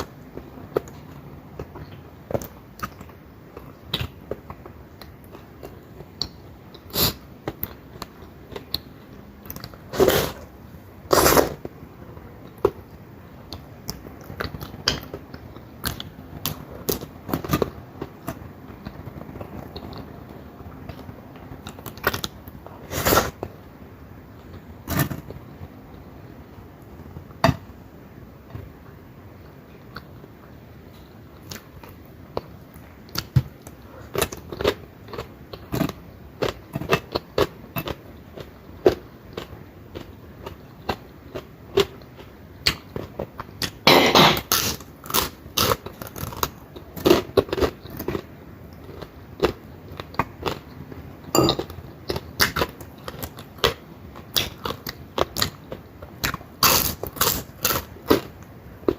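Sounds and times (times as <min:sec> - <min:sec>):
chewing crisp fried fish: 0:44.5 - 0:58.9.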